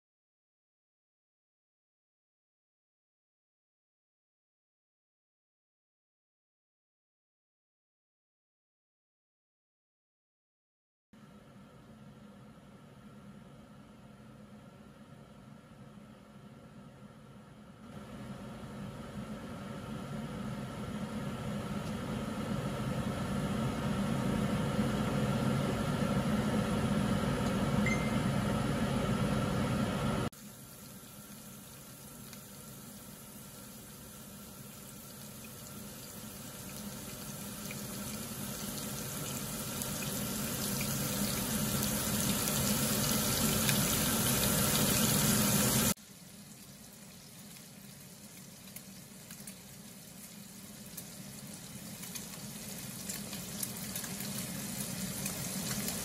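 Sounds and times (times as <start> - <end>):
pot of water boiling: 30.1 - 56.0
hiss of heating oil: 30.4 - 46.4
bacon sizzling in a pan: 30.4 - 56.0.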